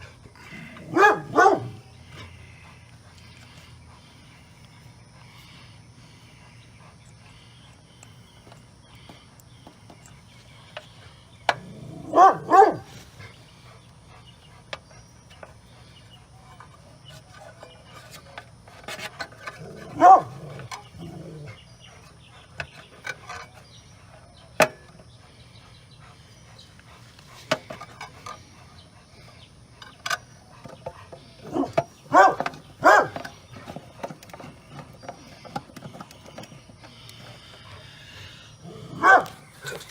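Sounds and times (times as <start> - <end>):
dog barking: 0.9 - 1.8, 12.0 - 12.9, 20.0 - 20.4, 31.5 - 33.2, 38.9 - 39.4.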